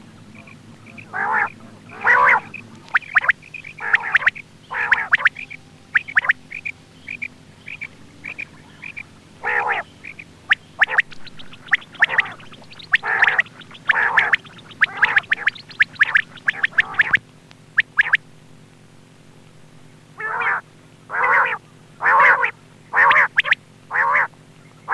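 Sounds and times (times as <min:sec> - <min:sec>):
quail calling: 0:00.0 - 0:18.4, 0:20.1 - 0:24.9.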